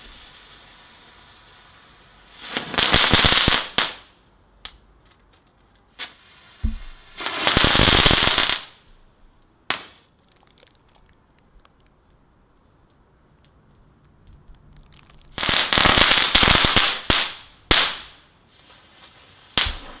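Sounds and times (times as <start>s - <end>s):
firework hissing crackling bursts: 0.0s - 4.2s, 5.9s - 8.9s, 9.6s - 10.2s, 15.2s - 20.0s
firework sharp bangs: 6.0s - 9.0s, 9.7s - 10.1s, 15.3s - 18.3s, 19.5s - 20.0s.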